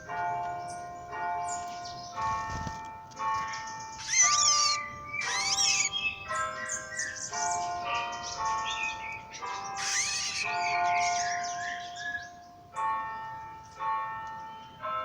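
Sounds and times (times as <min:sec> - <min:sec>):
bells ringing: 0:00.0 - 0:15.0
rising and falling animal calls: 0:04.0 - 0:06.2, 0:09.7 - 0:11.2.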